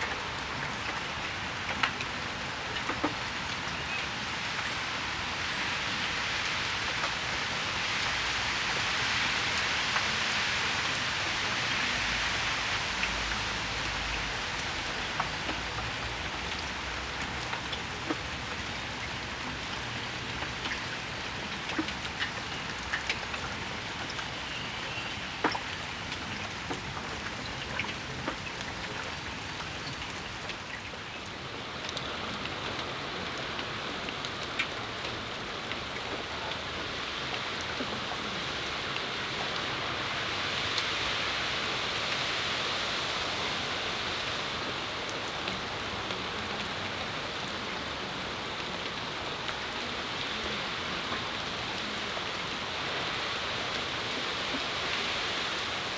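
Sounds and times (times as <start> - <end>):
rain falling on a patio: 0.0 - 55.9.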